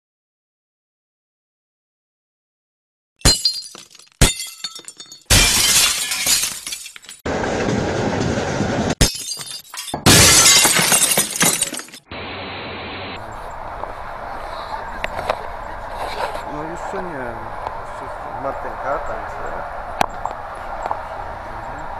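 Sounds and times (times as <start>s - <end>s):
rattling train noise: 7.3s - 9.0s.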